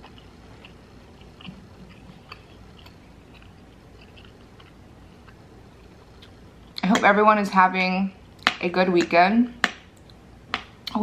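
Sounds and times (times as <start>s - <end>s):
person chewing food: 0.0s - 5.5s, 6.1s - 6.8s.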